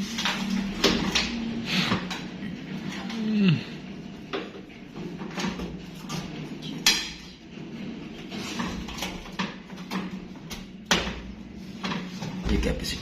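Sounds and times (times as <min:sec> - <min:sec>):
clicks and knocks of hard parts: 0:00.0 - 0:02.4, 0:04.3 - 0:07.4, 0:08.3 - 0:12.5.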